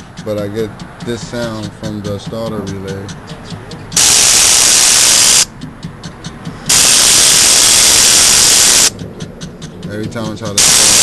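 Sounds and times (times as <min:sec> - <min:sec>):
starter relay buzzing: 0:03.9 - 0:05.6, 0:06.6 - 0:09.0, 0:10.4 - 0:11.0.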